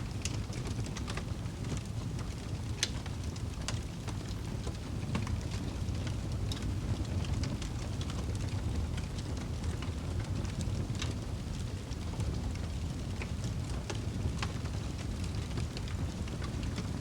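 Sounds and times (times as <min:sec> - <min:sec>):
fire rumbling: 0:00.0 - 0:17.0.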